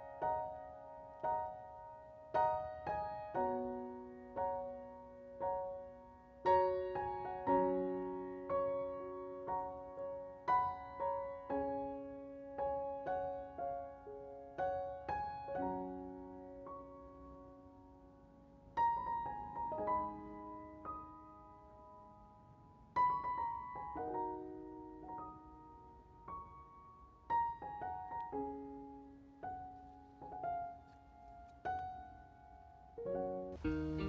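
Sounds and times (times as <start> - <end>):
slow gentle piano music: 0.0 - 34.0.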